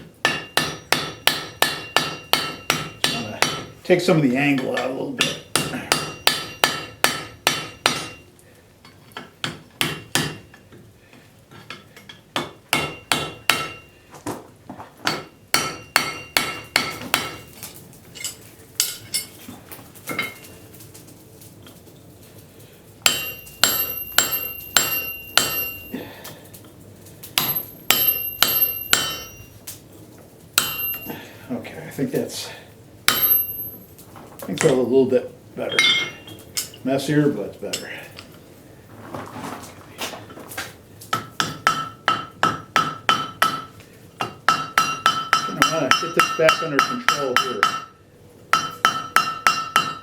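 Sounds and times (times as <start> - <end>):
hammer striking metal on anvil: 0.2 - 3.8, 4.6 - 8.2, 9.4 - 10.5, 12.4 - 13.9, 15.1 - 17.5, 23.0 - 26.1, 27.4 - 29.6, 30.6 - 31.3, 33.1 - 33.8, 35.7 - 36.8, 41.1 - 50.0
anvil ringing: 4.6 - 8.2, 23.0 - 26.1, 27.4 - 29.6, 30.6 - 31.4, 33.1 - 33.9, 35.6 - 36.8, 41.2 - 50.0.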